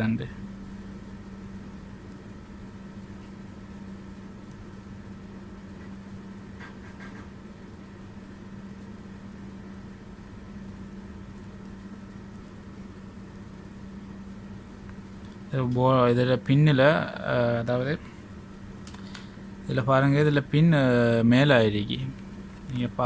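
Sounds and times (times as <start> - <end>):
low electrical hum: 0.0 - 23.0
faint clicks: 18.8 - 19.3.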